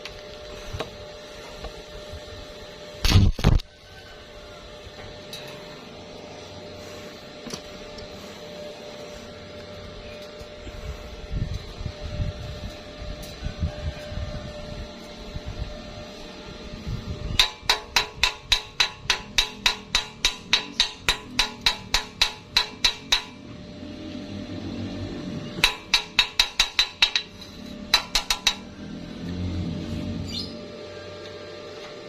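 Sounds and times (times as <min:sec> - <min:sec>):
hammer striking metal: 0:17.4 - 0:23.4, 0:25.6 - 0:27.3, 0:27.9 - 0:28.7.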